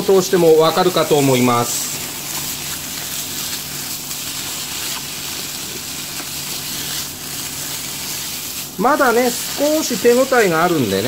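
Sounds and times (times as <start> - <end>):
food sizzling in frying pan: 0.0 - 11.0
spatula scraping pan: 0.2 - 11.0.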